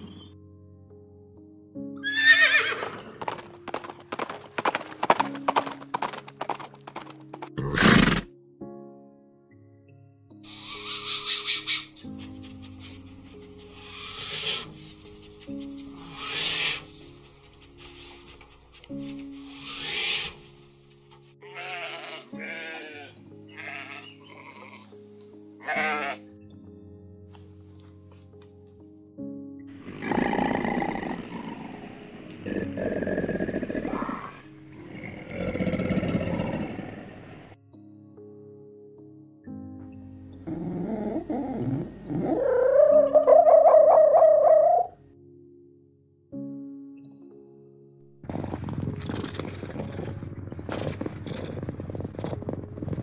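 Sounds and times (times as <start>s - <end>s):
background music: 0.0s - 53.0s
horse whinnying: 2.0s - 3.8s, 7.6s - 8.3s, 21.4s - 24.9s, 29.8s - 31.8s, 32.4s - 37.0s
hooves clip-clopping: 2.8s - 7.6s, 48.2s - 53.0s
sheep bleating: 21.4s - 24.9s, 25.6s - 26.2s.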